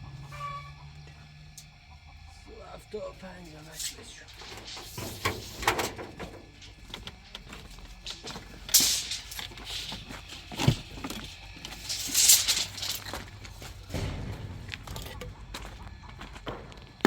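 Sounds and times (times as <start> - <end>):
scraping bursts: 3.4 - 16.0
building work knocks and clatter: 4.4 - 17.0
dull thud: 13.8 - 15.9.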